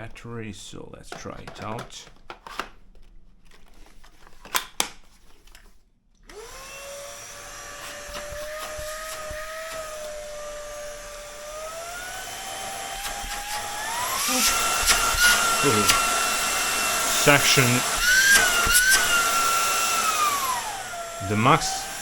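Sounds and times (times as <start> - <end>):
vacuum motor whine: 6.3 - 22.0.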